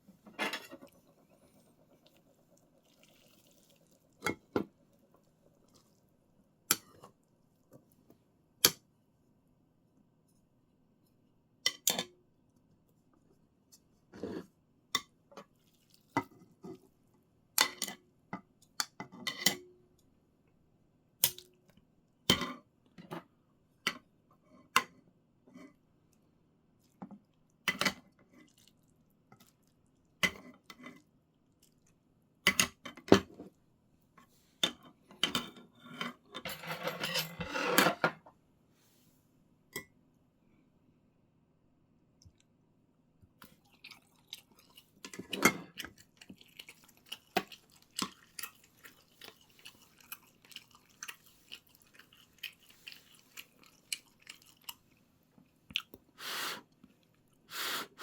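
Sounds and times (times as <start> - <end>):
kitchenware clinking: 36.3 - 38.2.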